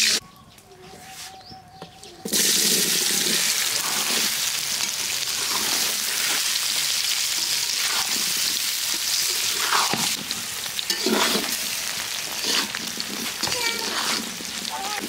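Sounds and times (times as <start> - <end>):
food sizzling in hot oil: 2.3 - 15.0
stirring scrapes in pan: 2.7 - 6.6, 7.4 - 15.0.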